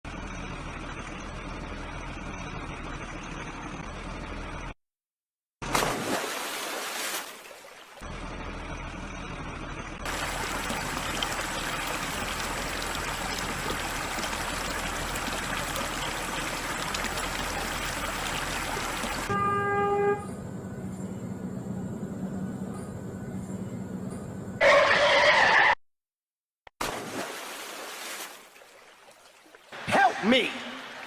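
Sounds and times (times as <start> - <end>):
river water rushing: 10.1 - 19.4.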